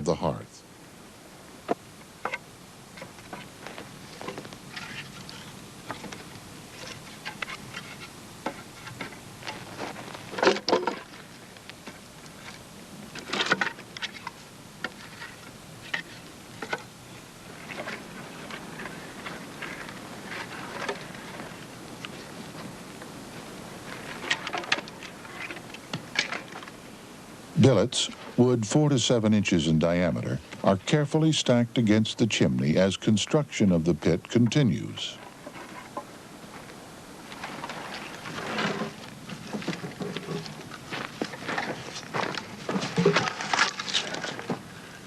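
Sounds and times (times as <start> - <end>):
wood pieces clattering when stacked: 38.4 - 44.7.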